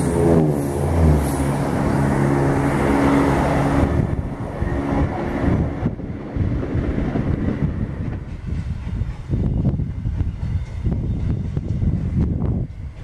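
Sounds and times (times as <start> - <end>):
diesel train engines humming: 0.0 - 13.0
wheels rushing on rails: 0.0 - 13.0.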